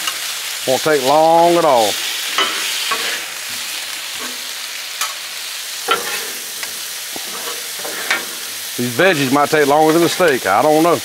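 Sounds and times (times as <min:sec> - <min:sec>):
meat and vegetables sizzling: 0:00.0 - 0:11.0
metal spatulas scraping and tapping: 0:02.4 - 0:03.2, 0:05.9 - 0:08.4.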